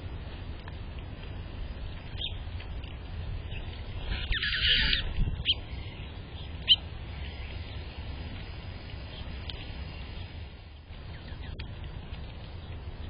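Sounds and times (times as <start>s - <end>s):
steady low rumble: 0.0s - 13.0s
harsh bird call: 4.1s - 6.0s.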